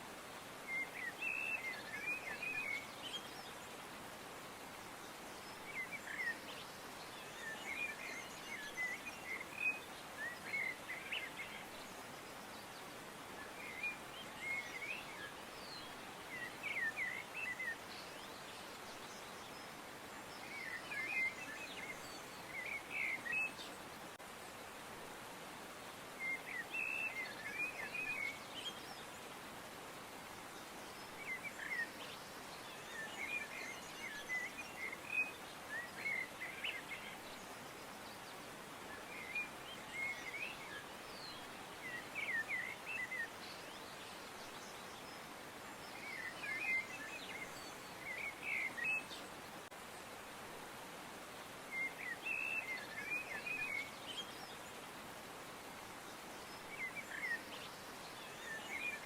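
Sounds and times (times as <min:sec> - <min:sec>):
faint outdoor hiss: 0:00.0 - 0:59.0
small birds chirping: 0:25.5 - 0:59.0.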